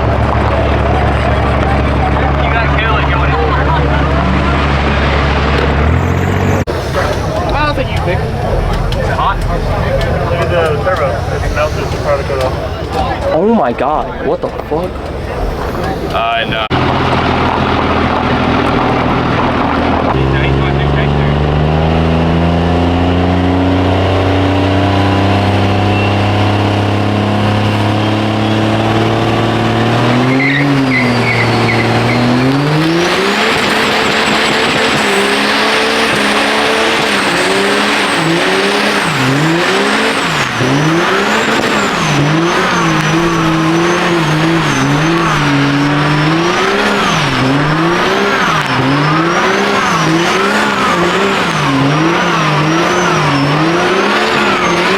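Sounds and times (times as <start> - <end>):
diesel truck engine revving: 0.0 - 54.9
tyres spinning with loud hiss: 6.2 - 16.7.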